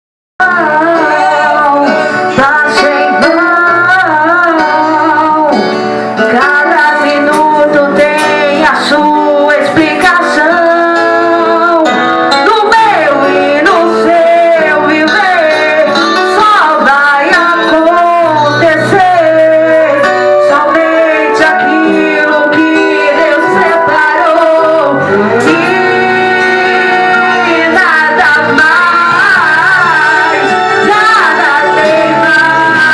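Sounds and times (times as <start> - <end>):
gospel singing: 0.4 - 32.9
guitar accompaniment: 0.4 - 32.9.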